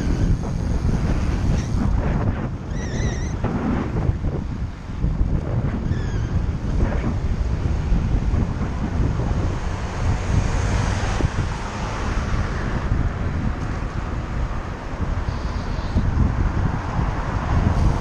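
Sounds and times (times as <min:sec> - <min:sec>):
road traffic: 0:00.0 - 0:18.0
wind buffeting microphone: 0:00.0 - 0:18.0.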